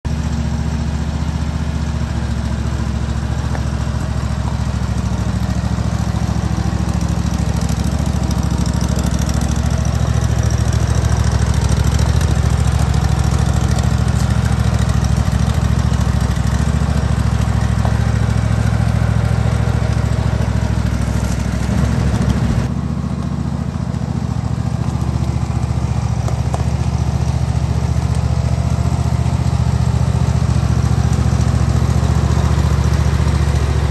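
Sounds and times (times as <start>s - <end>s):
tractor engine running: 0.0s - 33.9s.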